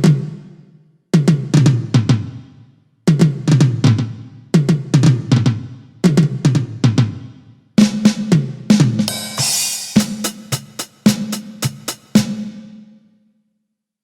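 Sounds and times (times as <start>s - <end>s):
electronic drum fills: 7.8s - 12.6s
cymbal-like wash: 9.1s - 12.2s
ringing drum hits: 9.1s - 12.2s.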